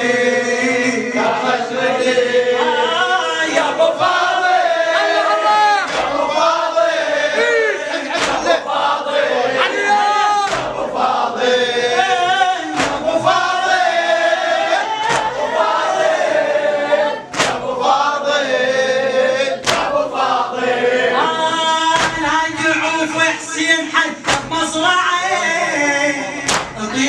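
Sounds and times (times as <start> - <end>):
men singing together: 0.0 - 27.0
sharp percussive strikes: 10.5 - 10.9, 12.7 - 13.4, 17.3 - 17.6, 24.2 - 24.8.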